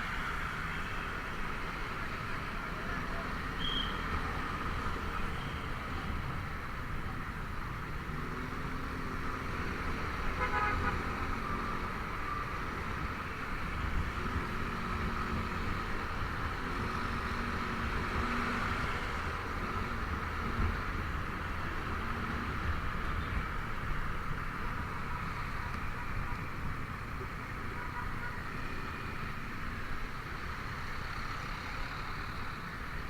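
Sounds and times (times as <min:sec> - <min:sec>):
wind and road noise: 0:00.0 - 0:33.0
vehicle horn honk: 0:10.4 - 0:11.0.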